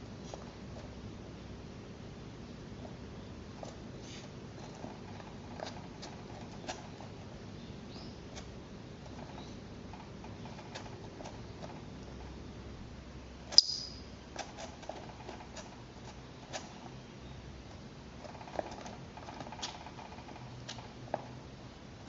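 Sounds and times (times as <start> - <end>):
short clicks and chirps: 13.6 - 14.0.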